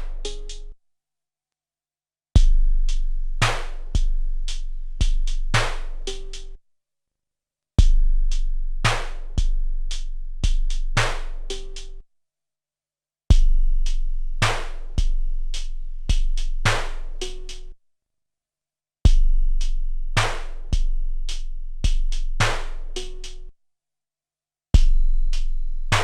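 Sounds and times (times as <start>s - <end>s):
sampled drum beat: 2.4s - 6.5s, 7.8s - 12.0s, 13.3s - 17.7s, 19.1s - 23.5s, 24.8s - 26.0s.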